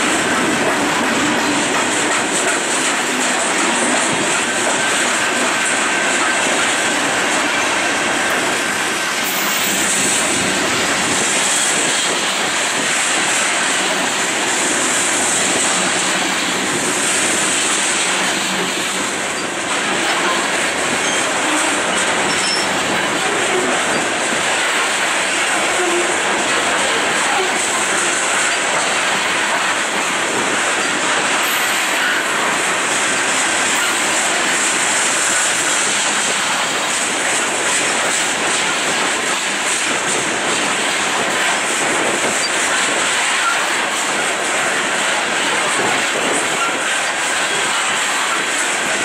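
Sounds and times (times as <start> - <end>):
freight cars rolling on rails: 0.0 - 49.0
high wheel squeal: 21.0 - 22.8.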